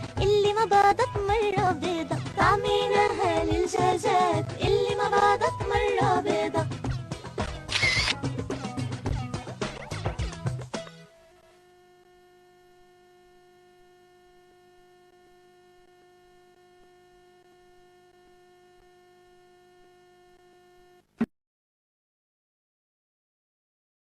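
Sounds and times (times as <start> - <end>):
sharp click: 7.5 - 8.2.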